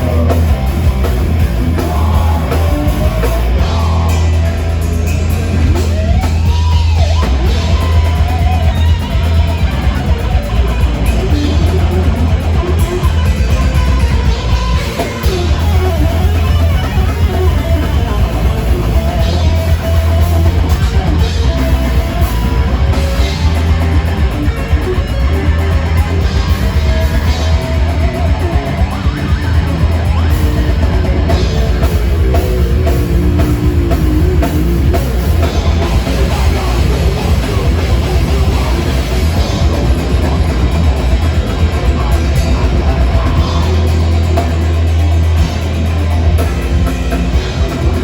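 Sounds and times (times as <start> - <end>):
heavy metal band playing live: 0.0 - 48.0.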